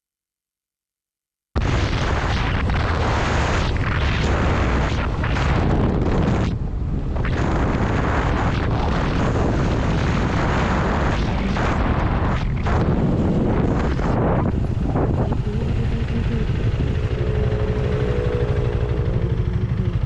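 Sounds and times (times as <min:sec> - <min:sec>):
wind blast on microphone: 0:01.6 - 0:20.0
motorcycle engine running: 0:12.8 - 0:20.0.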